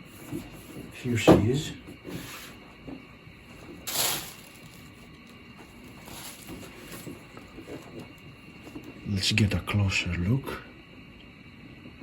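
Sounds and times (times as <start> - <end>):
packaging rustling: 3.6 - 8.9.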